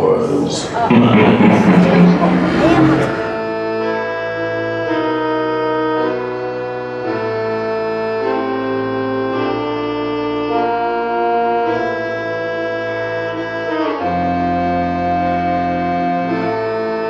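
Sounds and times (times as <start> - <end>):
sustained organ chords: 0.3 - 3.6.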